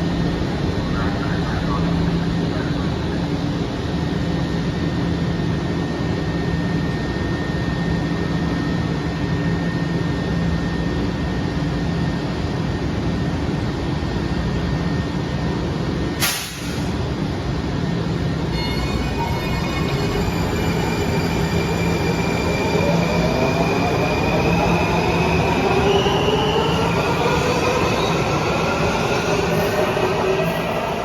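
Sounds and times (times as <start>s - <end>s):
train rumbling: 16.0s - 31.0s
sharp hiss of air: 16.2s - 17.0s.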